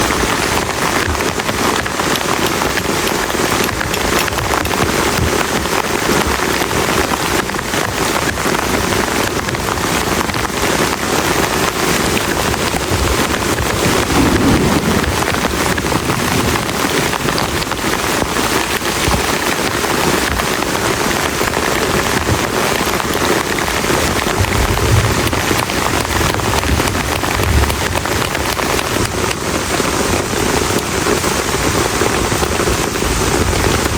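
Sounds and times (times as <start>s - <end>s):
heavy rain pouring: 0.0s - 33.9s
low rumbles: 12.9s - 18.2s.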